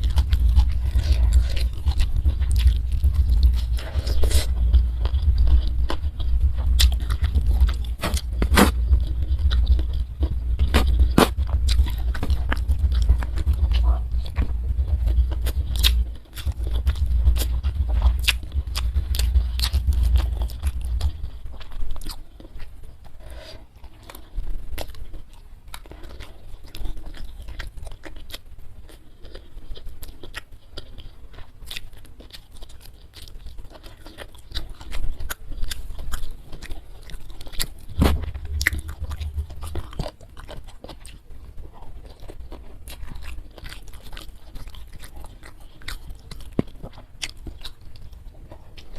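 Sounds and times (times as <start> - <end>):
heavy low thudding: 0.0 - 21.4, 37.9 - 40.1
chewing and crunching food: 0.0 - 48.9.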